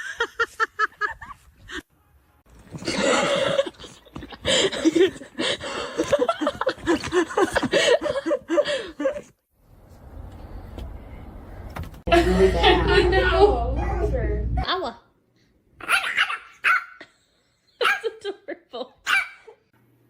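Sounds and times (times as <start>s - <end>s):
person laughing: 2.8s - 9.3s, 12.1s - 13.1s.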